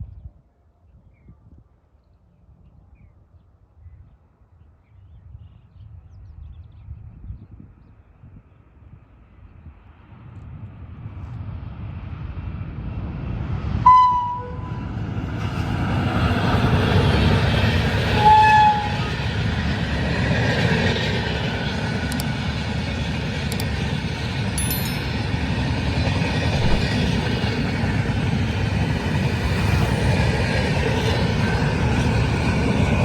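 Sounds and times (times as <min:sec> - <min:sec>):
train rumbling past: 0:12.5 - 0:33.0
locomotive horn blasts: 0:13.9 - 0:14.8, 0:18.1 - 0:19.2.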